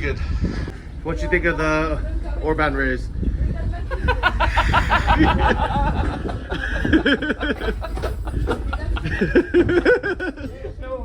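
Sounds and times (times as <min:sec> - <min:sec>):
low rumble: 0:00.0 - 0:11.0
people talking: 0:01.0 - 0:11.0
people laughing: 0:03.8 - 0:11.0.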